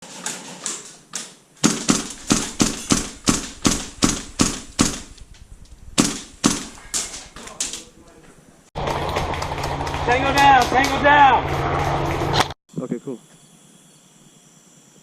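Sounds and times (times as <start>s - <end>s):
airsoft gun shots: 1.6s - 5.4s, 6.0s - 7.2s.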